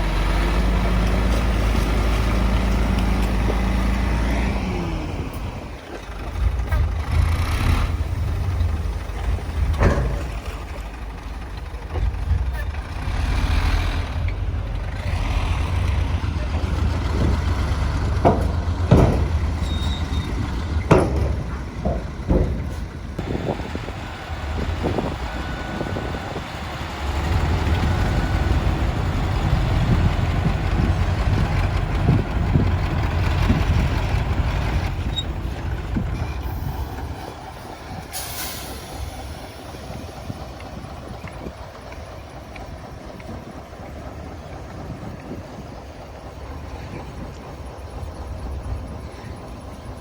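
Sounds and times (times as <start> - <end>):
diesel truck engine rumbling: 0.0 - 50.0
loud clunks and knocks: 9.6 - 10.9, 16.5 - 23.2
air hiss: 38.1 - 39.9.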